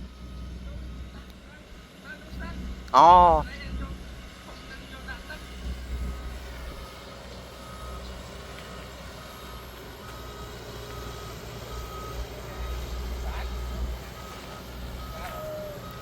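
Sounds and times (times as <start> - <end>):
reversing alarm beeping: 0.0 - 1.4, 5.3 - 16.0
diesel engine rumble: 0.0 - 16.0.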